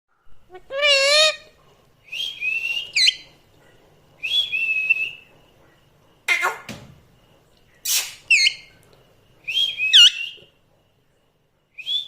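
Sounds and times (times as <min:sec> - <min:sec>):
parrot whistling: 0:00.5 - 0:01.5, 0:02.1 - 0:03.2, 0:07.9 - 0:08.7, 0:09.5 - 0:10.5.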